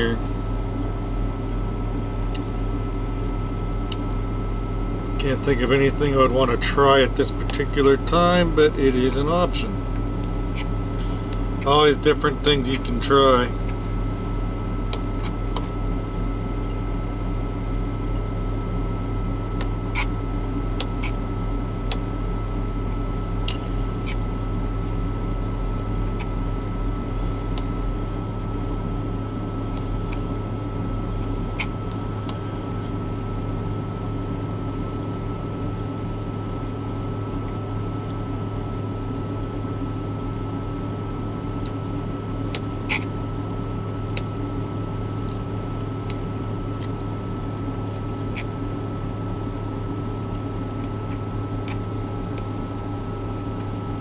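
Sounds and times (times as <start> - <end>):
truck cab mechanical hum: 0.0 - 54.0.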